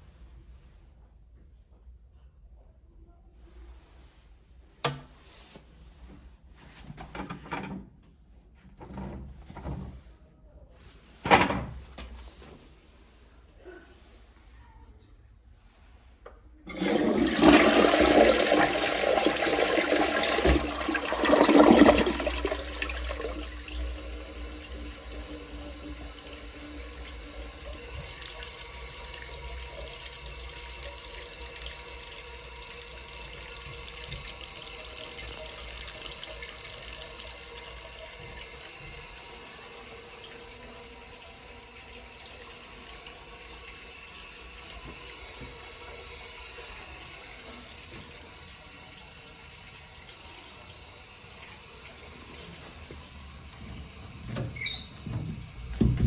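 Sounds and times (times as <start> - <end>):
toilet flushing: 16.7 - 56.0
toilet refilling with water: 16.7 - 56.0.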